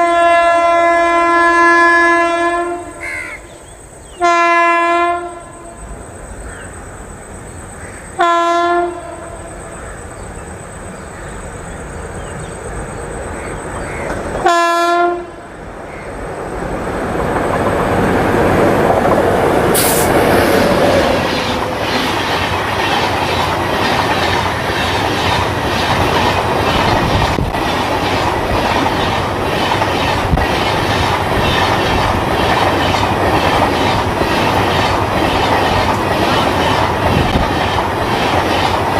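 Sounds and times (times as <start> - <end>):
locomotive horn blasts: 0.0 - 3.0, 4.2 - 5.8, 8.2 - 9.4, 14.4 - 15.4
train wheels clattering: 17.1 - 38.9.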